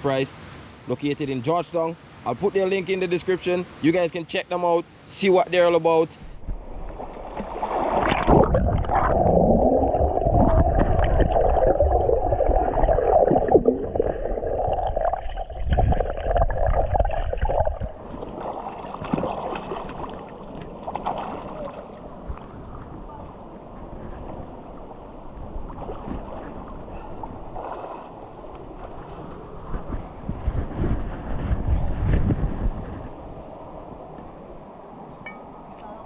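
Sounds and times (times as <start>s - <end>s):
water gurgling and churning: 6.4s - 23.8s.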